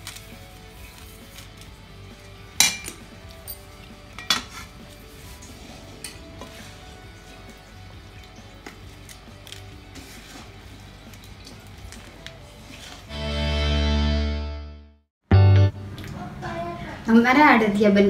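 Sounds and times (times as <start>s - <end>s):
metal utensils clinking: 2.6s - 4.9s, 5.8s - 6.8s.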